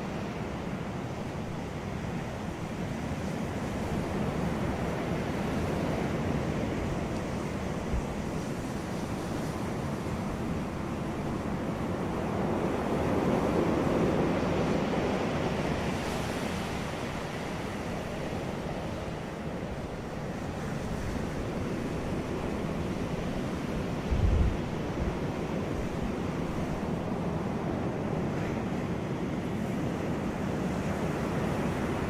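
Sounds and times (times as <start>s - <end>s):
ocean surf breaking waves: 0.0s - 32.0s
wind buffeting microphone: 20.9s - 32.0s.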